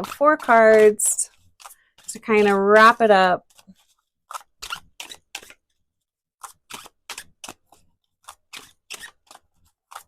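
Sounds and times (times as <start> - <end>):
cards being shuffled: 0.0 - 5.8, 6.4 - 10.0.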